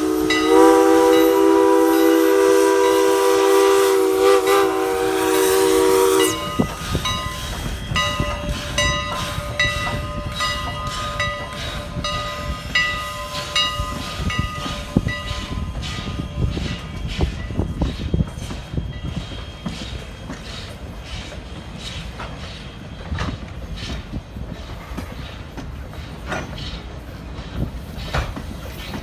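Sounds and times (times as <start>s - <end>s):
locomotive bell ringing: 0.0s - 3.2s, 5.9s - 20.4s
steam locomotive whistle: 0.0s - 20.1s.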